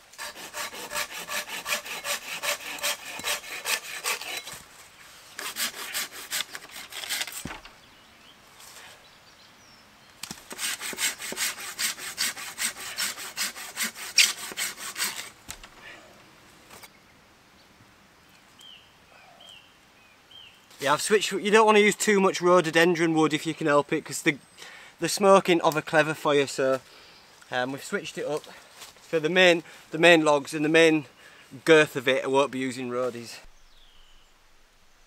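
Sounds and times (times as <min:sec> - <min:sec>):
hand saw cutting wood: 0:00.0 - 0:04.6, 0:05.4 - 0:07.6, 0:10.4 - 0:15.3.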